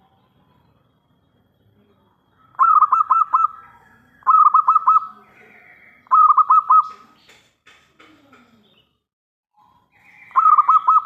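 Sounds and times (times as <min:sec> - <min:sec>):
dove cooing: 0:02.5 - 0:07.1, 0:10.0 - 0:11.0.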